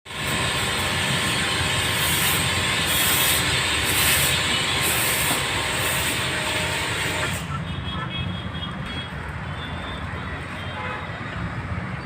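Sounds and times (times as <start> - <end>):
water spraying hiss: 0.1 - 7.6.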